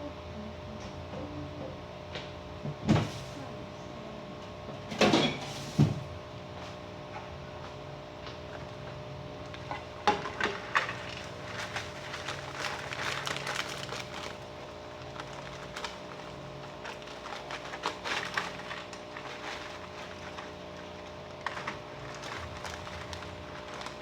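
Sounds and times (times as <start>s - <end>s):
plastic packaging crinkling: 9.5s - 24.0s.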